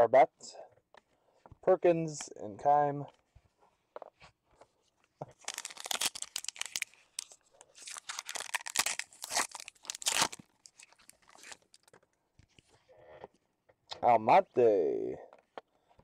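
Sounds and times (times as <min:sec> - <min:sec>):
foil wrapper crinkling: 0:05.3 - 0:12.0.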